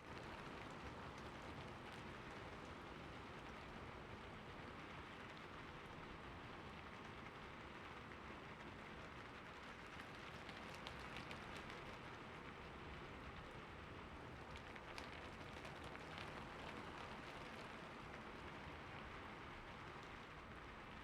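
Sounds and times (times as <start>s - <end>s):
light rain with drops ticking: 0.0s - 21.0s.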